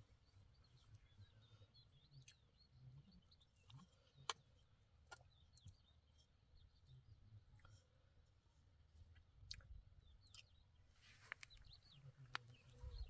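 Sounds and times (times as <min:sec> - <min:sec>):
faint bird chirps: 0:10.0 - 0:13.0.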